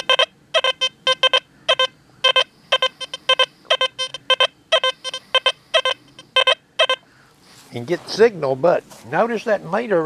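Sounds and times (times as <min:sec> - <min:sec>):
metal detector beeps: 0:00.0 - 0:07.0.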